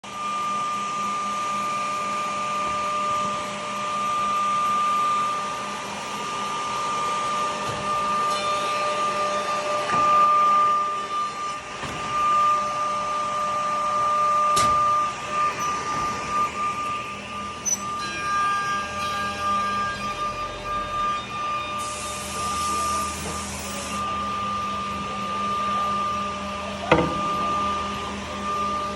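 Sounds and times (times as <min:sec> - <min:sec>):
edge banding machine running: 0:01.0 - 0:28.9
high hiss: 0:21.8 - 0:24.0.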